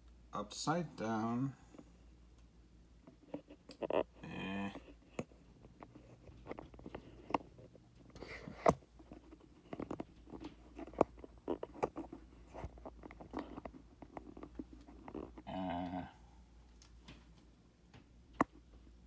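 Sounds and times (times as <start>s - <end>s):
handling clicks and taps: 5.1s - 15.4s.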